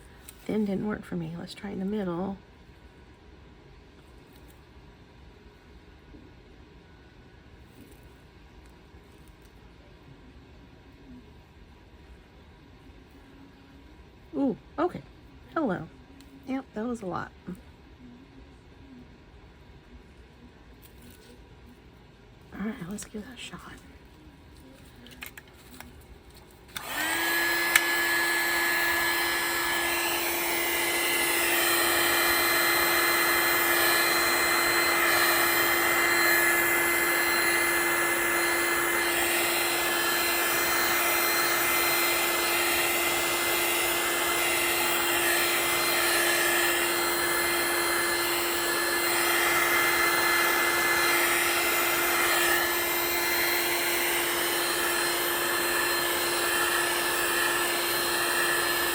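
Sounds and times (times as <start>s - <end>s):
hot-air blower humming and whining: 0.0s - 3.9s, 26.4s - 58.9s.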